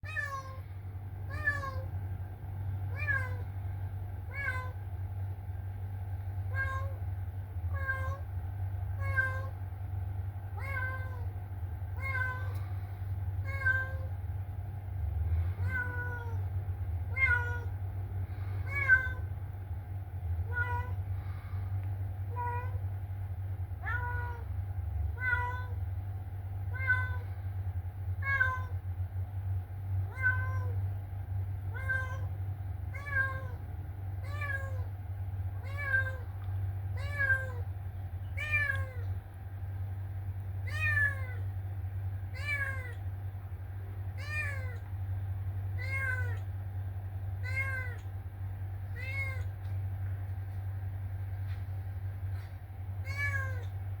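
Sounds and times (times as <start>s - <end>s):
cat meowing: 0.0s - 0.6s, 1.3s - 1.9s, 2.9s - 3.4s, 4.3s - 4.8s, 6.5s - 7.0s, 7.7s - 8.2s, 9.0s - 9.6s, 10.6s - 11.3s, 12.0s - 12.6s, 13.4s - 14.1s, 15.6s - 16.4s, 17.1s - 17.7s, 18.6s - 19.3s, 20.5s - 21.0s, 23.8s - 24.5s, 25.2s - 25.8s, 26.7s - 27.2s, 28.2s - 28.8s, 30.1s - 30.8s, 31.7s - 32.3s, 32.9s - 33.6s, 34.2s - 34.9s, 35.6s - 36.3s, 37.0s - 37.6s, 38.4s - 39.1s, 40.6s - 41.4s, 42.3s - 43.0s, 44.2s - 44.9s, 45.8s - 46.5s, 47.4s - 48.1s, 48.9s - 49.6s, 53.0s - 53.8s
steady low hum: 0.0s - 54.0s.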